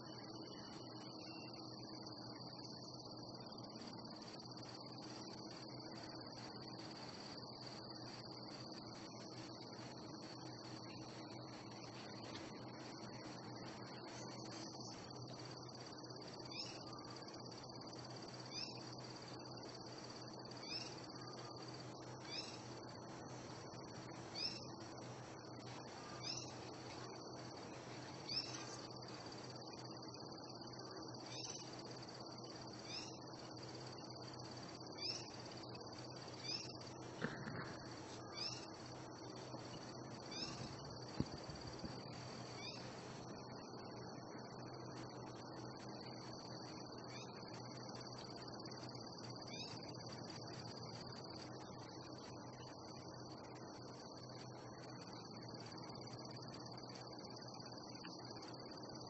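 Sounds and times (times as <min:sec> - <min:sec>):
high-pitched insect drone: 0:00.0 - 0:59.0.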